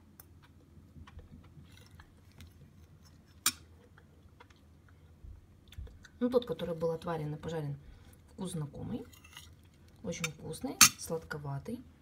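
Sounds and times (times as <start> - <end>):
person chewing mushrooms: 0.0 - 6.2.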